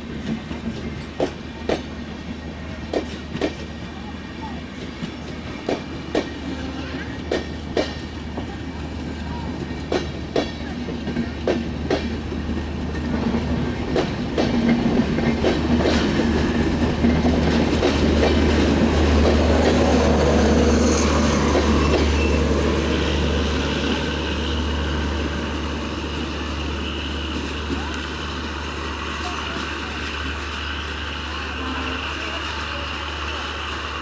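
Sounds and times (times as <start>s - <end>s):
train rolling rumble: 0.0s - 34.0s
train wheels clicking over rail joints: 0.0s - 34.0s.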